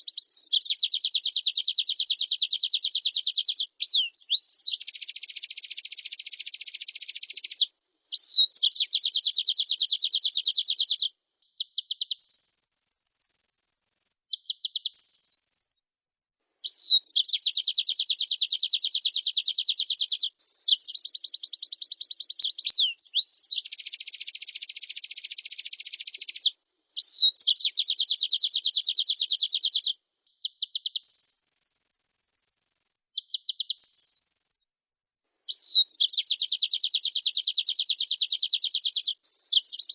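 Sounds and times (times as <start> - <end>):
bird chattering trills: 12.2 - 14.2, 14.9 - 15.8, 31.0 - 33.0, 33.8 - 34.6
high buzzy bird trills: 12.2 - 14.2, 15.0 - 15.8, 31.0 - 33.0, 33.8 - 34.6.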